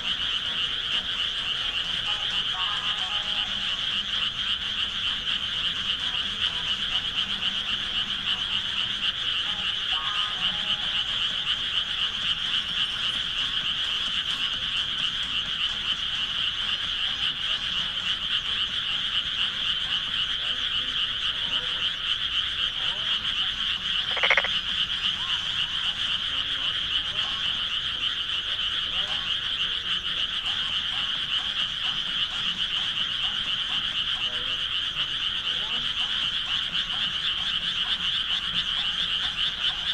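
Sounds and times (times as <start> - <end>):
frogs trilling in chorus: 0.0 - 39.9.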